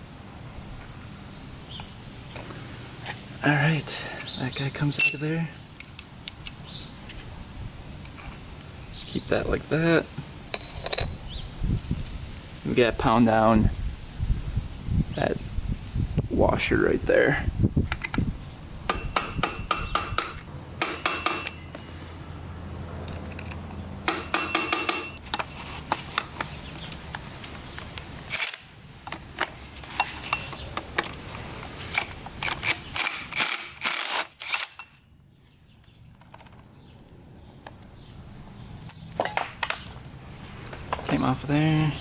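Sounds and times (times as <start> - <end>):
metal tools clinking: 4.9 - 6.0, 10.5 - 11.2, 28.3 - 29.2, 29.8 - 30.6, 38.9 - 39.6
hammer tapping metal punch: 18.9 - 21.6, 24.1 - 25.2.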